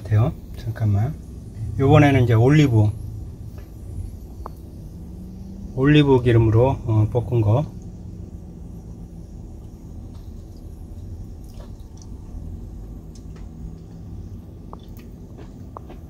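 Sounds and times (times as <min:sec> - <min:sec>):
steady low hum: 0:00.0 - 0:16.0
person chewing: 0:11.4 - 0:12.2, 0:14.7 - 0:16.0
wet mouth clicks: 0:14.7 - 0:15.2.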